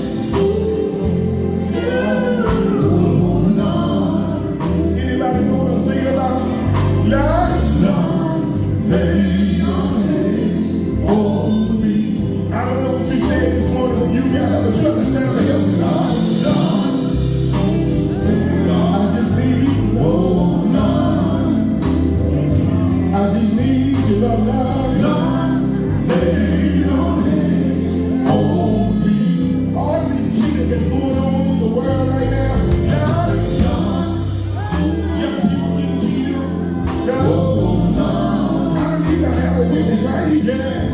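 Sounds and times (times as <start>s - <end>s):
bass line: 0.0s - 40.9s
male group singing gospel: 0.0s - 40.9s
drum beat: 32.4s - 35.8s.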